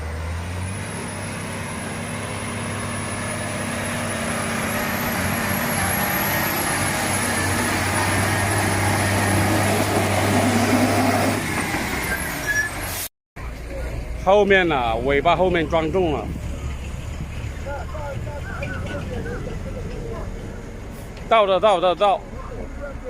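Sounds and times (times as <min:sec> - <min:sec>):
truck engine running hard: 0:00.0 - 0:23.0.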